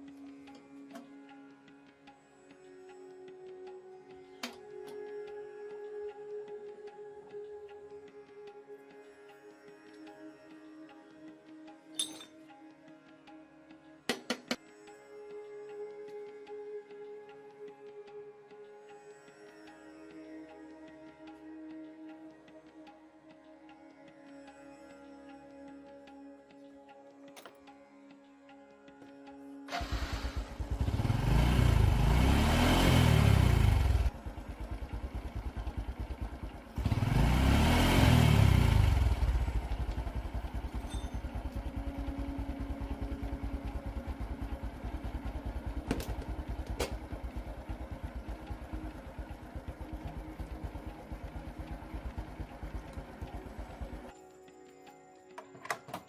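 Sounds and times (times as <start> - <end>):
motorcycle engine revving and idling: 29.7 - 54.1.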